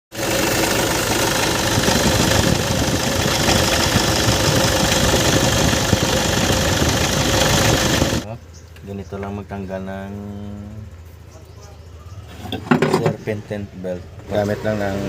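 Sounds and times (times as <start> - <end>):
car engine idling: 0.1 - 8.6
alternator hum: 0.1 - 12.2.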